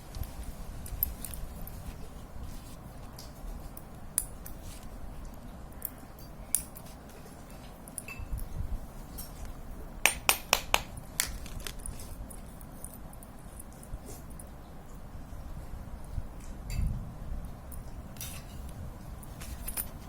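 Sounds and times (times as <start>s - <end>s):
metal parts clicking and clinking: 17.7s - 20.0s.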